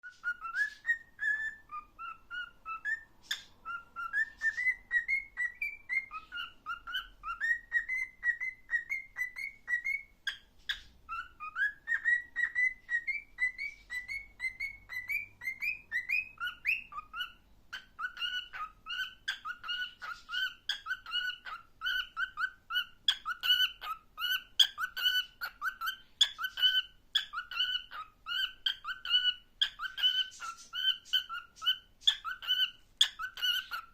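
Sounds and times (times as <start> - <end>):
cockatiel whistling a folk melody: 0.0 - 33.9.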